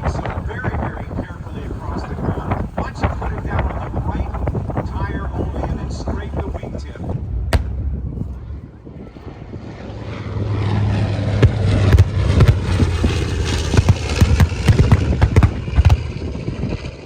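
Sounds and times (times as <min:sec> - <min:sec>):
aircraft engine low pass: 0:00.0 - 0:17.0
sharp cracks: 0:05.1 - 0:08.5, 0:11.4 - 0:16.2.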